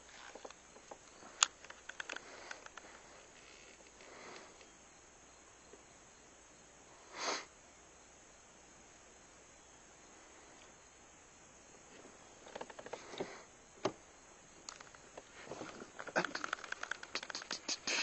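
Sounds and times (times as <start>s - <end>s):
person sniffing: 7.1s - 7.5s, 16.2s - 18.0s
clicks: 16.0s - 17.8s.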